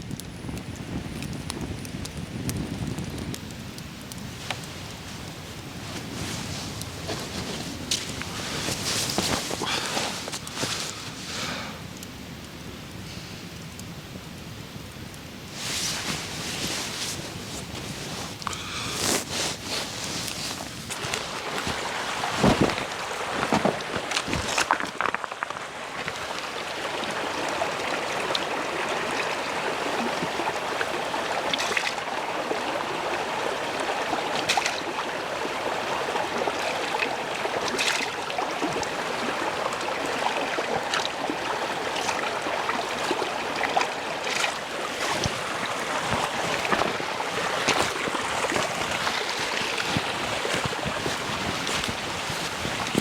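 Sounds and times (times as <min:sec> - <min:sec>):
steady rushing outdoor noise: 0:02.7 - 0:31.4.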